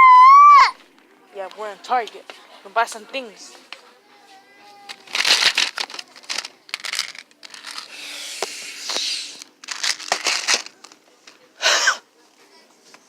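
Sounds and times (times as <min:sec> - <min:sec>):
rustling and scraping: 0:00.8 - 0:11.5
hissing rustle: 0:04.9 - 0:10.7.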